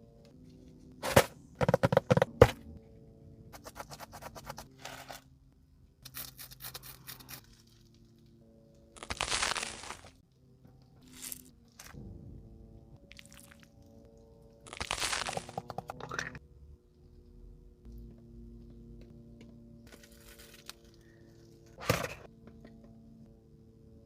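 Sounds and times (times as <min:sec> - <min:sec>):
food cracking: 0:09.0 - 0:10.1, 0:14.7 - 0:15.9
rustling tearing: 0:09.0 - 0:10.1
crisp crackling of food: 0:09.0 - 0:10.2, 0:14.7 - 0:15.7.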